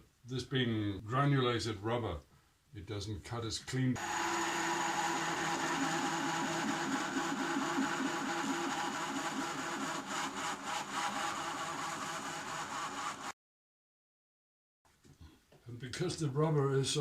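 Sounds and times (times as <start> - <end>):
power drill drilling rubber: 4.0 - 13.4.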